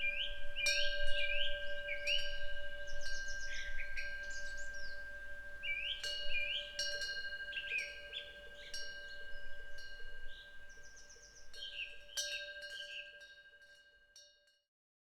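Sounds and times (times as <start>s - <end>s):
wind bell tinkling: 0.0s - 14.5s
small birds chirping: 5.6s - 9.2s.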